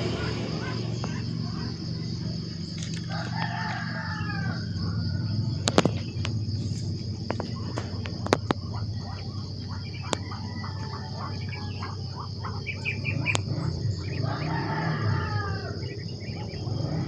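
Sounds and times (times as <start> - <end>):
high steady buzz: 0.0 - 2.6
rooster crowing: 0.0 - 5.7, 9.1 - 17.0
steady low hum: 0.0 - 17.0
sharp clicks: 7.2 - 8.6.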